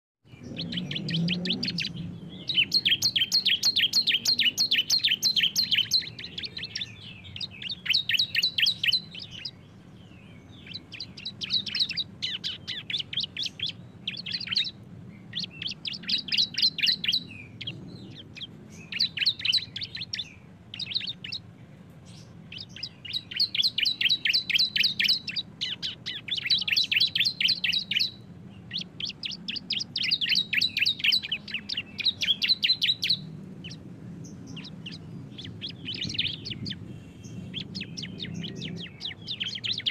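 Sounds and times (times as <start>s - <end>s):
birds singing chattering trill: 0.2s - 39.9s.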